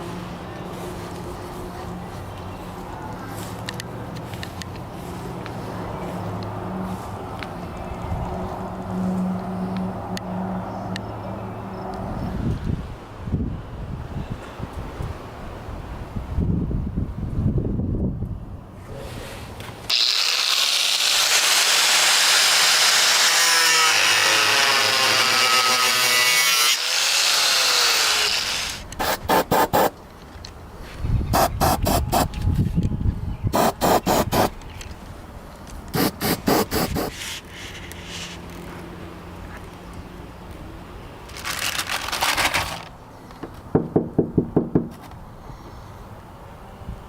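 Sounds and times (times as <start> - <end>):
power tool running: 19.9 - 29.9.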